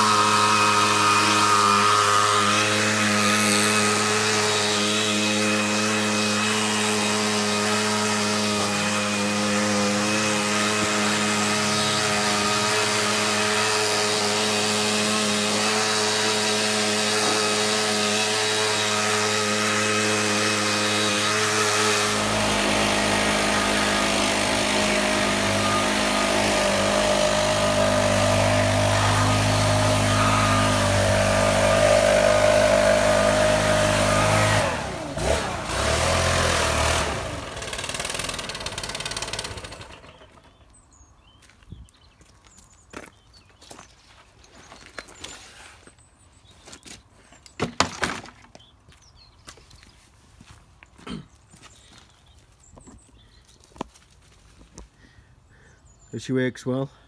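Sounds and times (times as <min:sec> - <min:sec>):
leaf blower engine running: 0:00.0 - 0:40.7.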